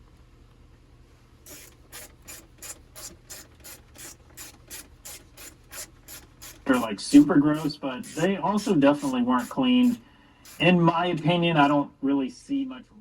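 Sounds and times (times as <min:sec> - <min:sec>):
rhythmic rubbing strokes: 0:01.5 - 0:10.8.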